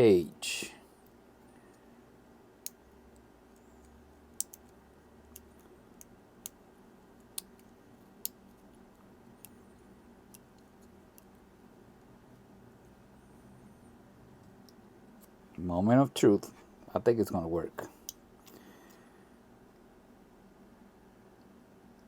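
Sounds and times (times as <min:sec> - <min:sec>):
light clicks of watch parts: 0:02.6 - 0:06.6.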